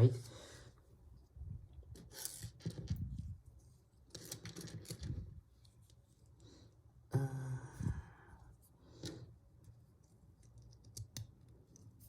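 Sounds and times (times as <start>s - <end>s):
person sighing: 7.1s - 8.4s.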